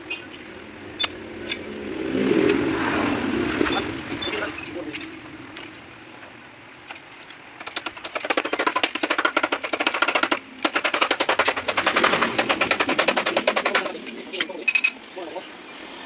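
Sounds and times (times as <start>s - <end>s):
fast rattle of sharp knocks: 6.9s - 14.0s.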